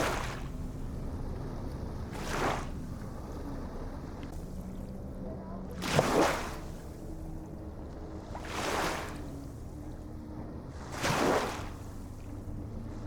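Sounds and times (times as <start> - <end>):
low rumble of surf: 0.0 - 13.0
small waves splashing: 0.0 - 13.0.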